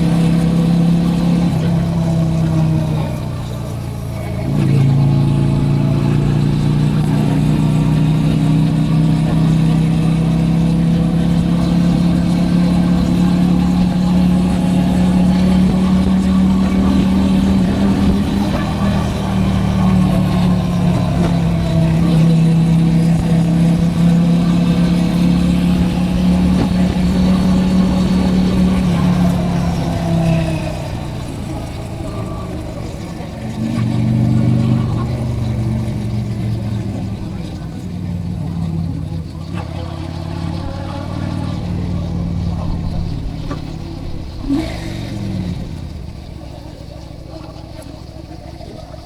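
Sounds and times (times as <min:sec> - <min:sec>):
motorcycle engine running: 0:00.0 - 0:49.0
road and wind noise: 0:00.0 - 0:49.0.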